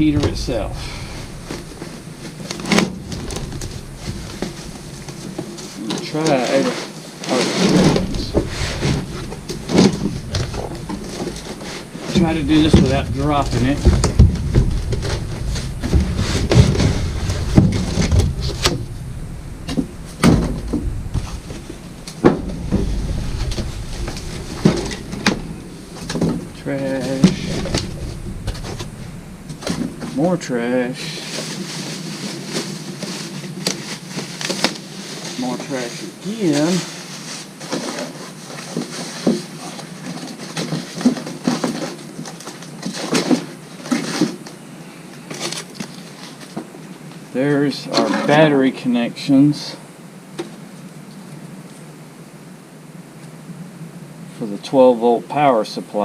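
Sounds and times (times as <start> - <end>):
cardboard rustling: 0.0 - 30.2
knocks and scrapes of heater: 0.0 - 31.8.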